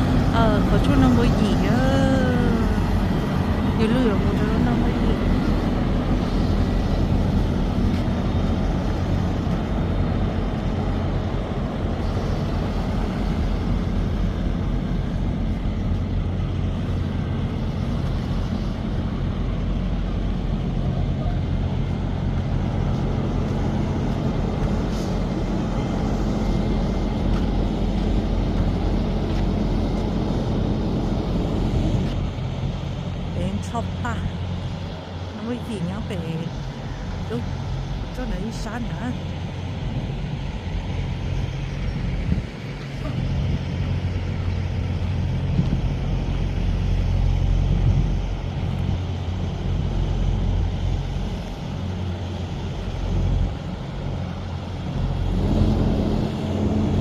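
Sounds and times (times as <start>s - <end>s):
road noise: 0.0s - 57.0s
truck engine droning: 0.0s - 57.0s.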